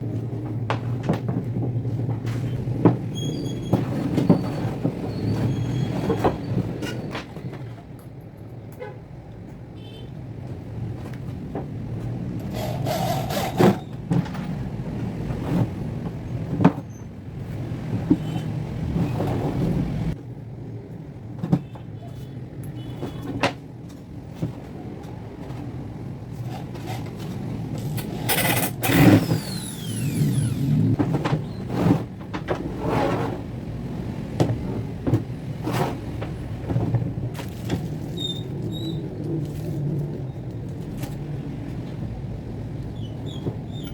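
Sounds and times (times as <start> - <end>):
knocks and clatter: 0.0 - 8.2, 22.7 - 33.4.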